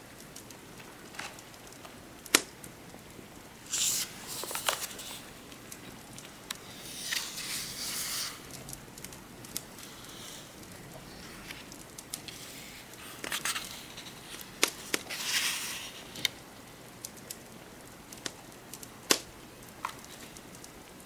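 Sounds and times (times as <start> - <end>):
rain ambience: 0.0 - 21.0
book pages turning: 3.6 - 16.4.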